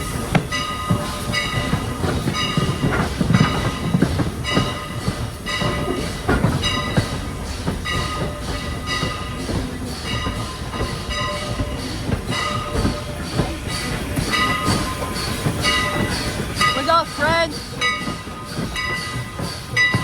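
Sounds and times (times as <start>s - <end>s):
locomotive bell ringing: 0.0s - 20.0s
train rumbling and clattering: 0.0s - 20.0s.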